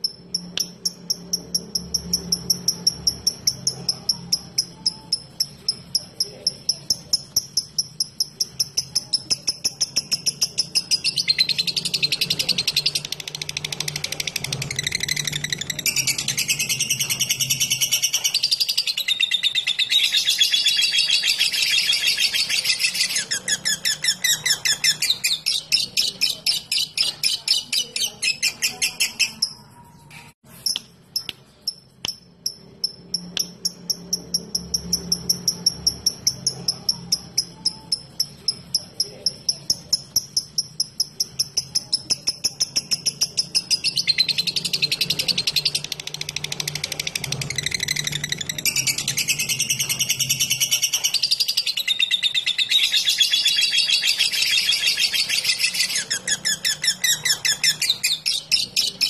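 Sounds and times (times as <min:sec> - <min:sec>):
sharp bird clicks: 0:00.0 - 0:19.3, 0:30.1 - 0:52.1
lovebird chattering trill: 0:00.0 - 0:59.0.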